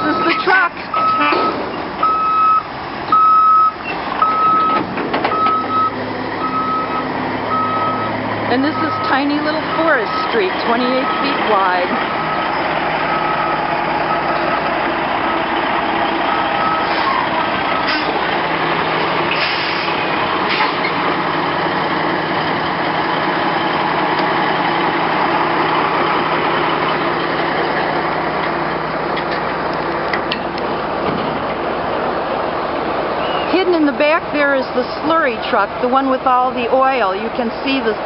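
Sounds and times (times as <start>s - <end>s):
reversing beeper: 0.0s - 14.7s, 16.3s - 18.1s
truck engine running: 0.0s - 38.0s.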